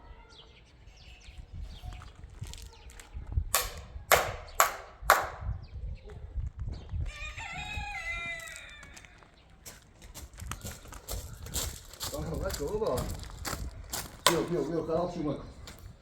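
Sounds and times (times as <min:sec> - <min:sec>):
rooster crowing: 0:07.1 - 0:09.3.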